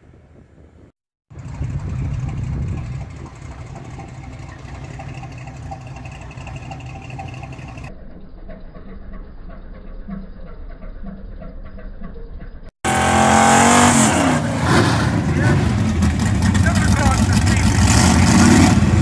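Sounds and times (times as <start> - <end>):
engine idling: 1.3 - 13.7, 15.1 - 19.0.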